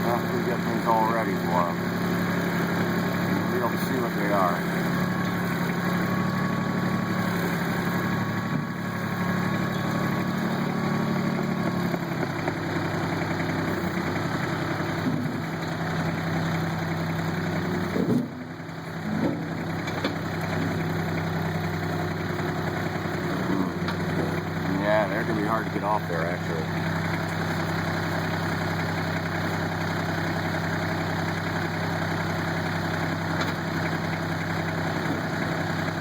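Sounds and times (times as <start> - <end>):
tractor diesel engine running: 0.0 - 36.0
short clunks: 15.0 - 15.5, 17.8 - 18.4, 19.1 - 20.8, 33.4 - 33.6.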